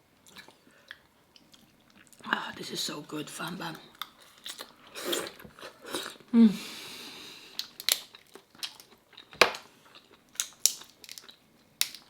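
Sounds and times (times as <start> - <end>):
crab shell cracking and crunching: 7.5 - 12.0.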